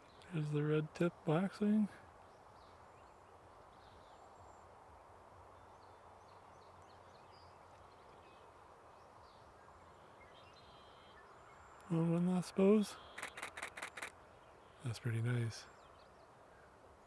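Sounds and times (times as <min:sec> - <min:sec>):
high thin bird calls: 0:11.8 - 0:14.1.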